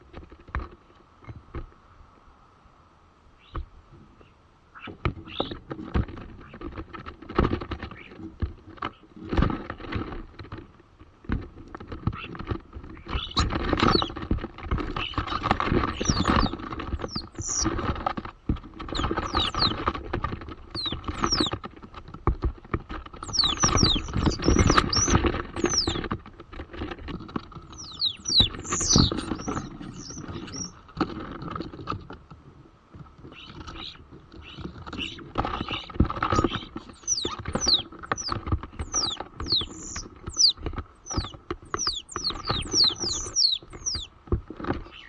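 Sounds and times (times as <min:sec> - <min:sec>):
starlings squeaky whistles: 0:13.1 - 0:14.1, 0:15.0 - 0:17.7, 0:18.9 - 0:19.8, 0:20.8 - 0:21.5, 0:23.2 - 0:26.0, 0:27.7 - 0:30.8, 0:33.4 - 0:44.1
starlings clicking and rattling: 0:13.1 - 0:22.1, 0:22.8 - 0:32.1, 0:34.6 - 0:44.8.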